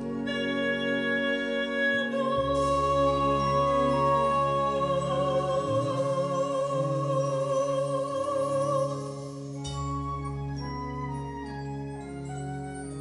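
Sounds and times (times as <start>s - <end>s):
wind orchestra chords: 0.0s - 13.0s.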